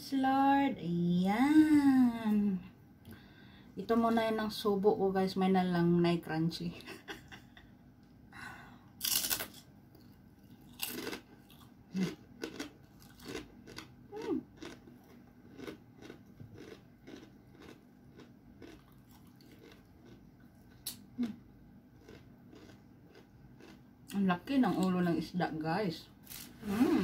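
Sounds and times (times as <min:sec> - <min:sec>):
crunchy cracker chewing: 0:09.0 - 0:21.4, 0:22.0 - 0:23.8.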